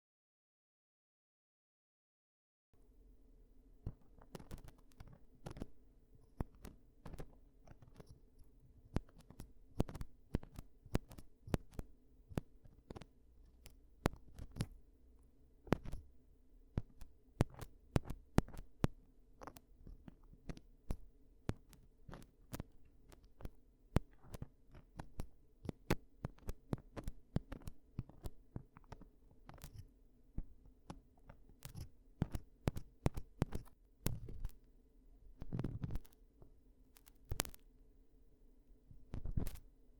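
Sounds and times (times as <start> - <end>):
faint steady hum: 2.8 - 39.9
ear-cleaning crackling clicks: 3.8 - 14.8, 15.7 - 16.1, 16.8 - 29.8, 30.8 - 34.6, 35.4 - 36.2, 37.0 - 37.6, 39.1 - 39.7.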